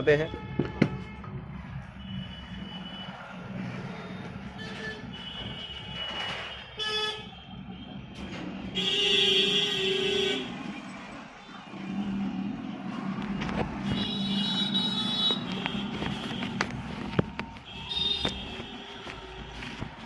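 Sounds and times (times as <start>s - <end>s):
vehicle horn honking: 0.0s - 1.3s, 4.6s - 7.6s, 8.7s - 10.5s, 13.8s - 16.6s, 17.7s - 19.5s
low hum of traffic: 0.0s - 20.0s.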